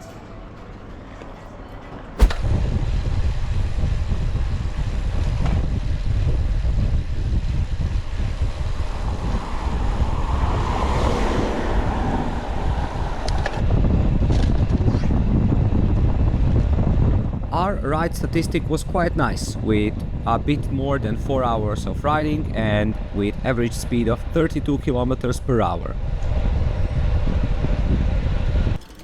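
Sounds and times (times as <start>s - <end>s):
rushing noise: 2.2s - 2.8s
wind buffeting microphone: 2.2s - 28.8s.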